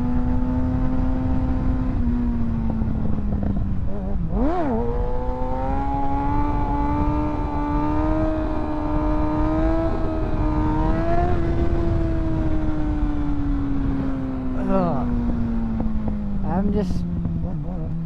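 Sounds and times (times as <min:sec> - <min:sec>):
motorcycle engine at high revs: 0:00.0 - 0:18.0
heavy wind rush: 0:05.4 - 0:18.0.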